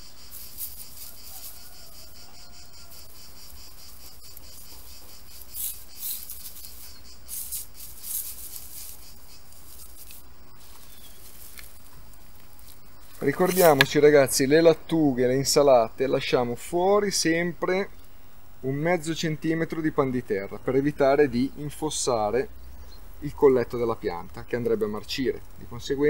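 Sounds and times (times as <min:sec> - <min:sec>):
straw mulch rustling: 0:00.0 - 0:18.1, 0:19.0 - 0:26.0
insects chirring: 0:00.0 - 0:26.0.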